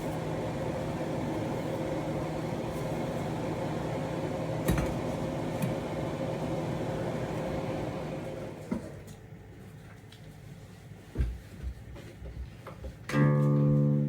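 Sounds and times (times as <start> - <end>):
kitchen appliance motor hum: 0.0 - 8.9.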